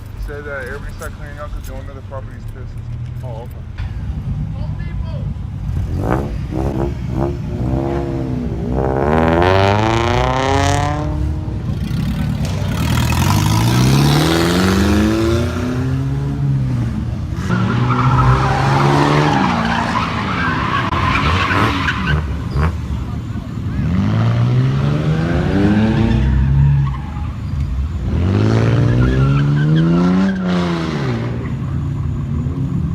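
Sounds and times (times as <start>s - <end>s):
tyres skidding: 0.0s - 32.9s
car engine revving hard: 5.7s - 22.8s, 23.8s - 26.5s, 28.0s - 31.4s.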